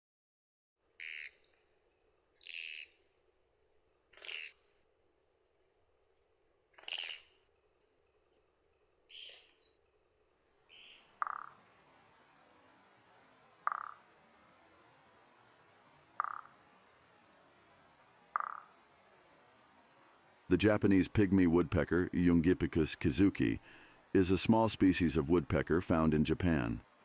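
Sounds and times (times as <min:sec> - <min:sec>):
woodpecker buzzy call: 0:01.0 - 0:01.5, 0:02.4 - 0:03.0, 0:04.1 - 0:04.7, 0:06.7 - 0:07.5, 0:09.1 - 0:09.7, 0:10.7 - 0:11.6, 0:13.6 - 0:14.2, 0:16.1 - 0:16.7, 0:18.3 - 0:19.0
low croaking note: 0:11.0 - 0:11.7, 0:13.6 - 0:14.3, 0:16.1 - 0:17.1, 0:18.2 - 0:19.1.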